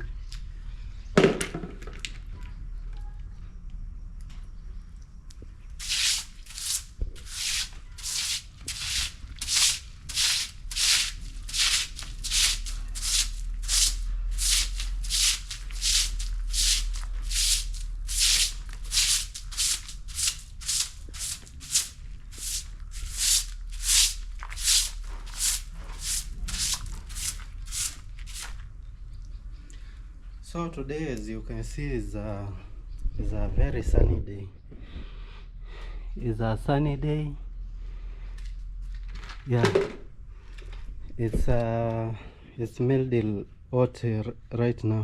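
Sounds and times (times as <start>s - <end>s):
broom sweeping: 5.8s - 28.6s.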